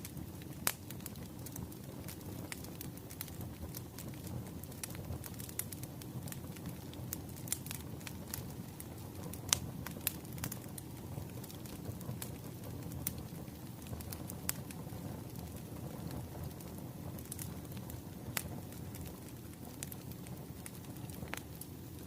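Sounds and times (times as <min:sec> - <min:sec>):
firewood crackling and popping: 0:00.0 - 0:22.0
low rush of flames: 0:00.0 - 0:22.0.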